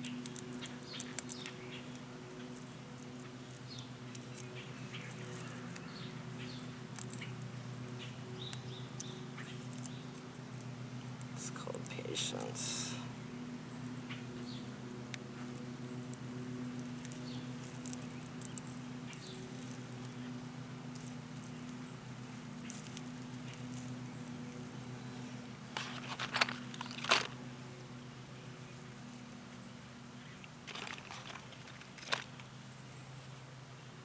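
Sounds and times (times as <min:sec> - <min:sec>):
steady low hum: 0:00.0 - 0:34.0
plant material rustling and crackling: 0:15.4 - 0:25.0, 0:25.7 - 0:27.4, 0:30.4 - 0:32.5.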